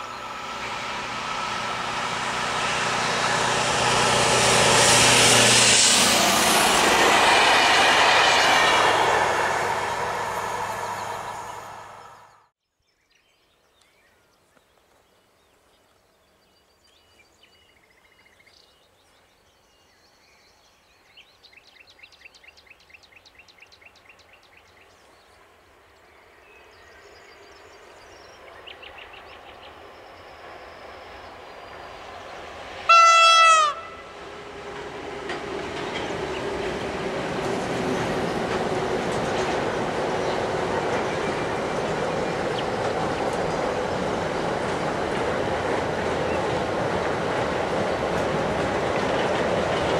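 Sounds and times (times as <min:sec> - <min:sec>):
short train horn blast: 0:32.9 - 0:34.2
locomotive running noise: 0:32.9 - 0:49.9.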